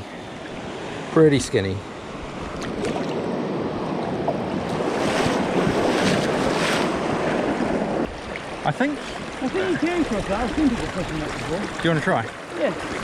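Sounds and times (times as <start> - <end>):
wind on microphone: 2.2 - 8.4.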